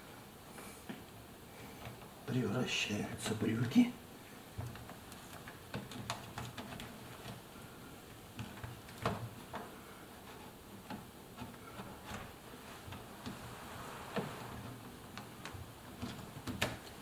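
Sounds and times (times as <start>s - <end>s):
hands clicking and tapping rubber: 4.6s - 7.5s, 8.3s - 13.4s, 15.1s - 17.0s.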